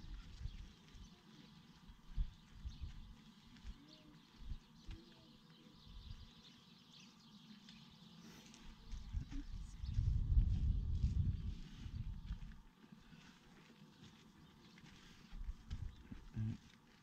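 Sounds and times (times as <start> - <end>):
small birds chirping: 0.0 - 17.0
soft low thumps: 8.8 - 12.7, 15.4 - 16.6.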